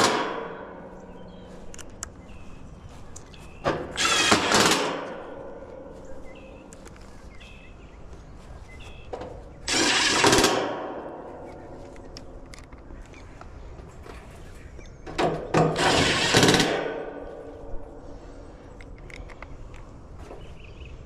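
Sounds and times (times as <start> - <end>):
steady low hum: 0.0 - 21.0
cordless drill bursts: 4.0 - 4.9, 9.7 - 10.5, 15.7 - 16.7.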